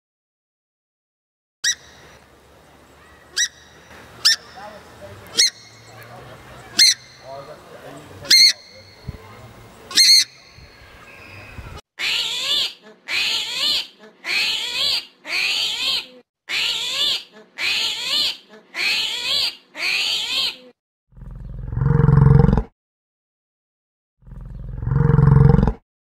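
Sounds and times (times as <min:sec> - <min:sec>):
high animal calls: 0:02.9 - 0:20.7.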